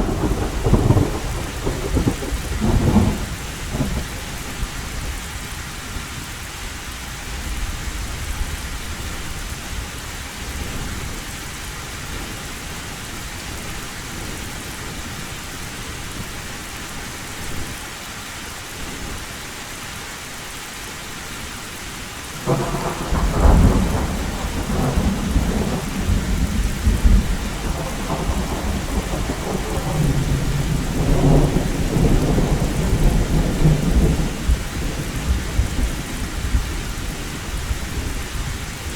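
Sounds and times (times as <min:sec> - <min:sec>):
thunder rumble: 0:00.0 - 0:05.2, 0:22.4 - 0:38.9
heavy rain on a tin roof: 0:00.0 - 0:38.9.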